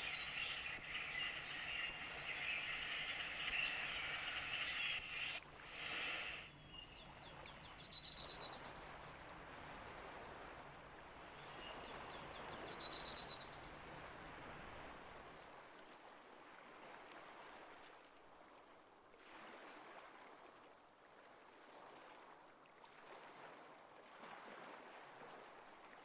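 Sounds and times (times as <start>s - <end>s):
high insect drone: 0.0s - 9.8s
songbird rising notes: 0.0s - 9.8s.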